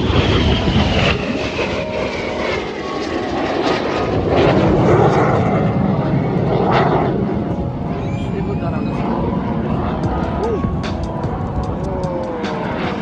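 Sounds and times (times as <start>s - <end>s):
aircraft flying past: 0.0s - 13.0s.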